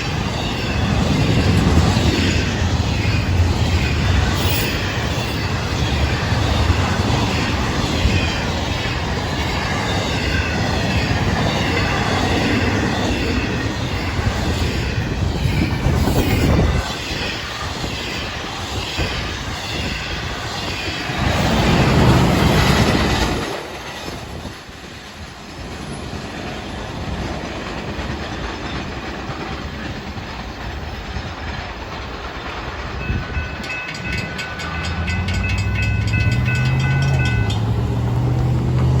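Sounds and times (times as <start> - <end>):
train wheels clattering over rails: 0.0 - 39.0
high steady tones: 32.8 - 38.3.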